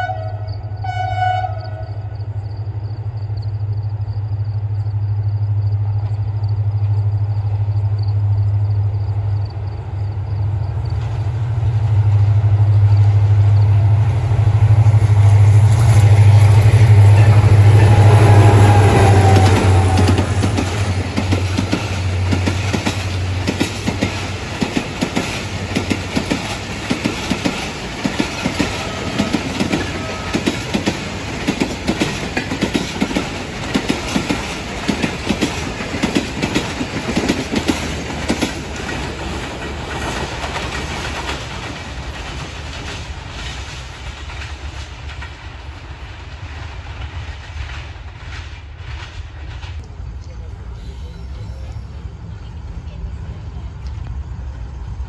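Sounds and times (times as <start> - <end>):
train wheels clickety-clack: 9.5 - 50.5.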